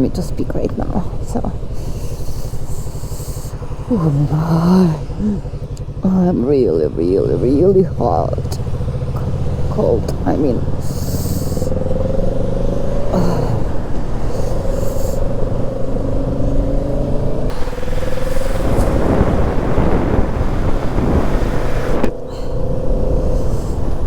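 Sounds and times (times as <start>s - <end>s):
motorcycle engine running: 0.0s - 24.0s
wind on microphone: 12.8s - 24.0s.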